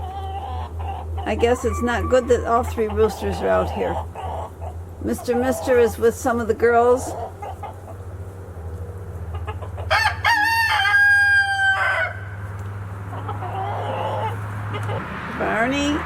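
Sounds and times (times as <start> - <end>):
rooster crowing: 0.0 - 4.6, 9.4 - 12.4, 13.1 - 15.0
chicken calls: 0.0 - 15.1
steady low hum: 0.0 - 16.0.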